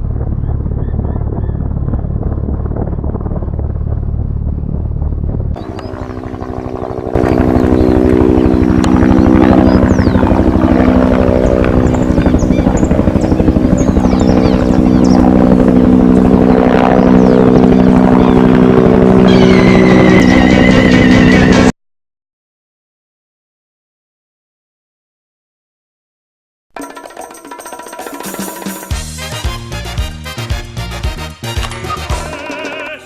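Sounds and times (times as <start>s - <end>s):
high whine: 0.0s - 21.7s
pulsing engine-like drone: 0.0s - 21.7s.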